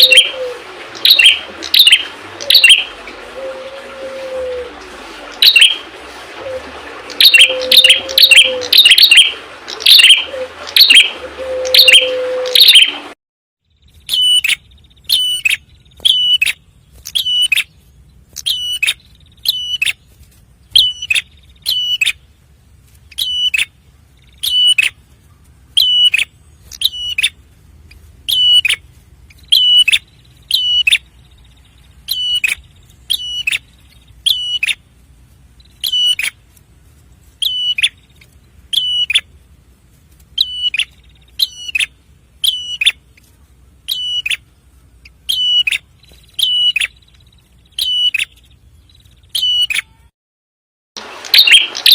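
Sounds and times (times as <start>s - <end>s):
bird sharp high chirps: 13.8s - 17.7s, 18.3s - 20.0s, 20.7s - 22.2s, 23.1s - 25.0s, 25.8s - 27.4s, 28.3s - 34.8s, 35.6s - 36.4s, 37.4s - 39.3s, 40.4s - 43.1s, 43.9s - 44.4s, 45.0s - 50.1s.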